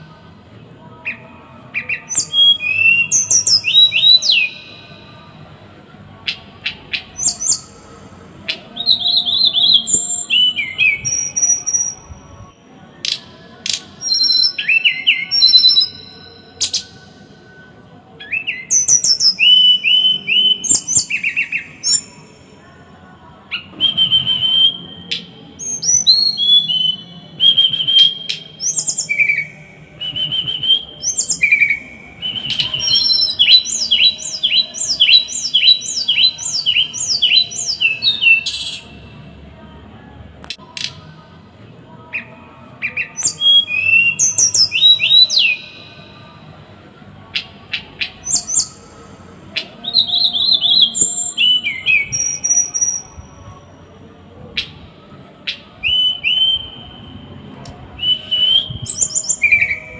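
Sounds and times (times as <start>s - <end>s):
small songbird singing: 0.9s - 5.1s, 6.2s - 17.2s, 18.2s - 22.6s, 23.5s - 39.0s, 42.1s - 46.2s, 47.3s - 53.4s, 58.0s - 59.9s.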